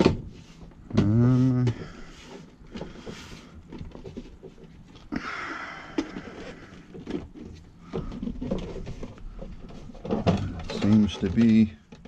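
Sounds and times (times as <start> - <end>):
rustling scrape: 0.0 - 5.1.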